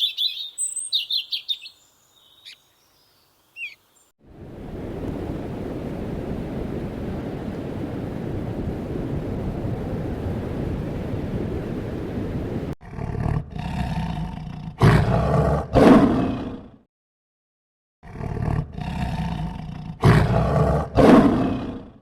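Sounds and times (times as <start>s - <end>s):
steady rushing noise: 4.3s - 12.8s
large animal roaring: 12.8s - 16.8s, 18.0s - 22.0s.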